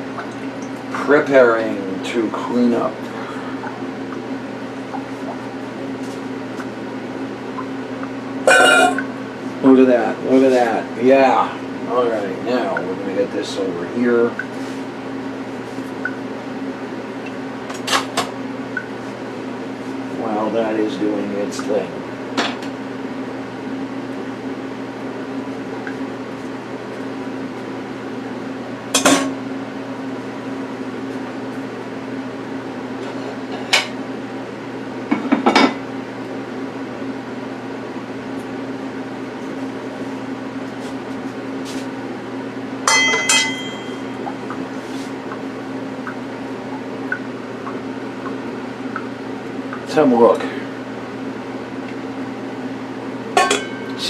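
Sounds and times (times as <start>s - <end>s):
steady low hum: 0.0s - 54.0s
dishes clattering into a sink: 42.9s - 44.0s, 53.4s - 53.9s
ringing clink: 42.9s - 44.0s.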